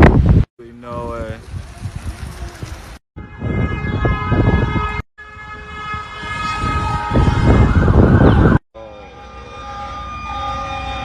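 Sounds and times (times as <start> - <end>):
emergency sirens: 3.2 - 11.0.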